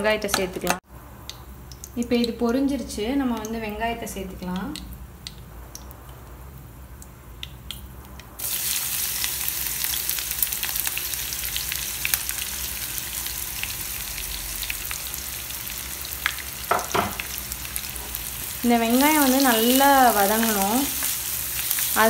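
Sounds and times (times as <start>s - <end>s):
spices crackling in hot oil: 1.2s - 22.0s
onions sizzling in oil: 8.4s - 22.0s.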